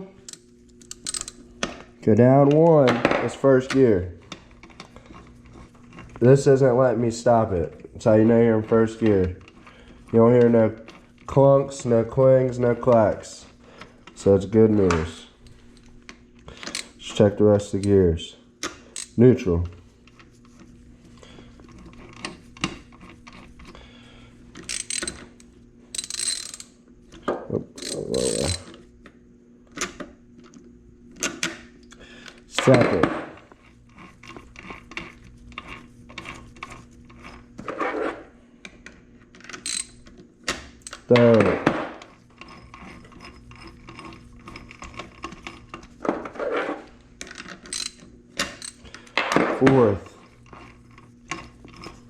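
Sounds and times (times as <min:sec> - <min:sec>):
gears clicking and ratcheting: 0:00.2 - 0:01.4, 0:24.6 - 0:26.7, 0:27.7 - 0:28.7, 0:39.4 - 0:40.0, 0:47.2 - 0:48.9
gear rattle: 0:24.6 - 0:26.7, 0:27.7 - 0:28.8, 0:39.4 - 0:40.0, 0:47.2 - 0:48.9.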